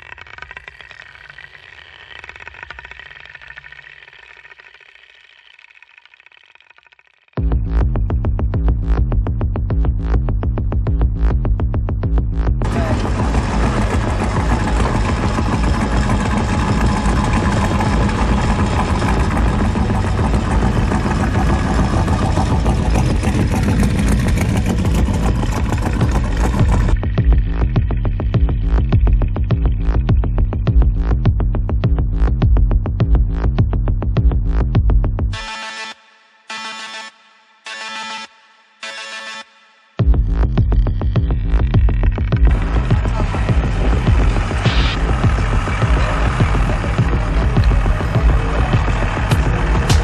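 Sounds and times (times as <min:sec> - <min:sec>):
car engine idling: 0:12.6 - 0:30.8, 0:40.8 - 0:50.0.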